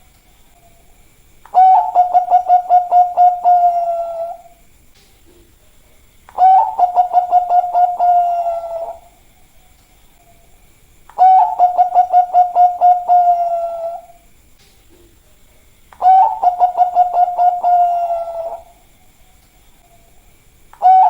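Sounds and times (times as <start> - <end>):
dove cooing: 1.5 - 4.6, 6.3 - 9.2, 11.2 - 14.2, 16.0 - 18.8, 20.8 - 21.0.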